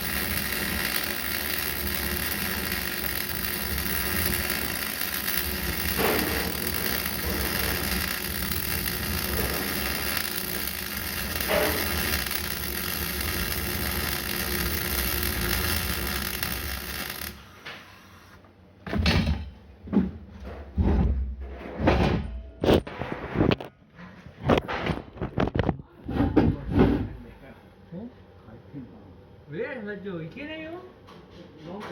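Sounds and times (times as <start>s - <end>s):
steady hissing: 0.0s - 18.4s
knocks and clanks: 5.4s - 8.3s.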